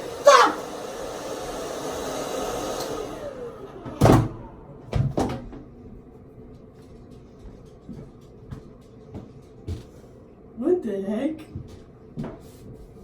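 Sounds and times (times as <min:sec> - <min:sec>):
hair dryer blowing: 0:00.0 - 0:05.2.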